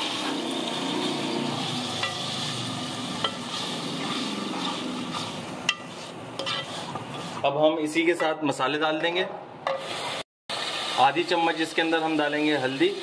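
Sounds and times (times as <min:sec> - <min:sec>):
tomatoes sizzling in hot oil: 0:00.0 - 0:07.5, 0:09.8 - 0:13.0
wooden spoon scraping a pot: 0:03.2 - 0:07.6.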